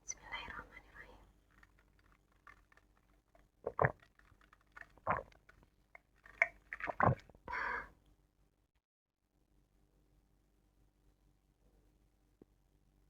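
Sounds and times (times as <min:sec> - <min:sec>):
person chewing wetly: 0:01.5 - 0:07.4
wet mouth smacks: 0:01.6 - 0:07.3.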